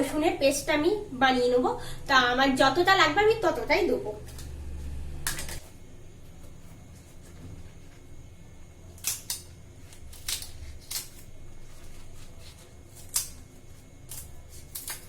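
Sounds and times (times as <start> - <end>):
low steady hum: 0.0 - 15.0
leaves being cut: 3.6 - 5.7, 8.9 - 15.0.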